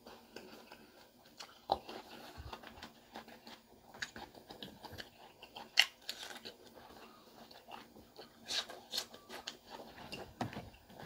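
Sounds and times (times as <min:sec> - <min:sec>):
chewing crispy food crunches: 0:00.1 - 0:10.2.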